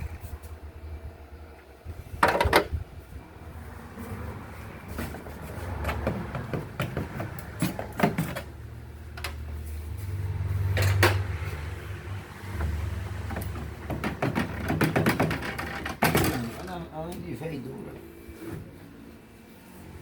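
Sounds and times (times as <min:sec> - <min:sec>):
items clattering in refrigerator: 0:12.6 - 0:16.8.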